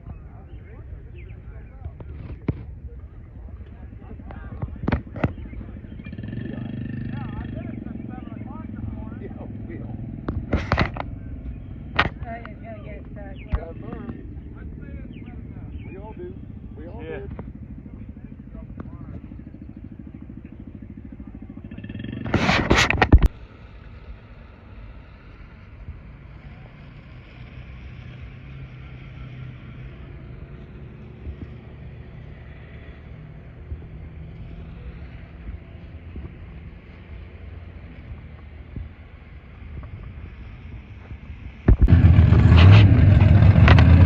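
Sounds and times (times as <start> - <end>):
faint engine hum: 0.0 - 44.0
mud truck engine roaring: 0.0 - 44.0
truck engine revving low: 2.9 - 36.7, 41.6 - 44.0.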